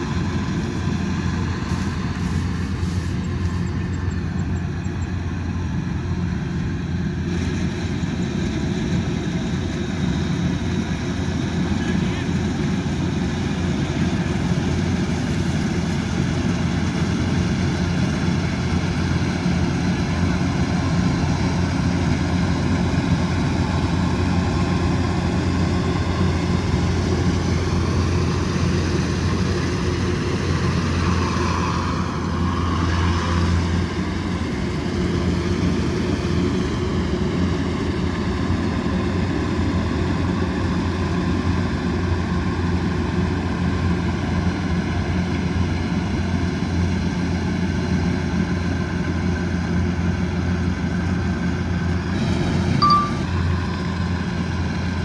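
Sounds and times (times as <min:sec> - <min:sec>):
combine harvester drone: 0:00.0 - 0:55.0
high machine whine: 0:52.8 - 0:54.1.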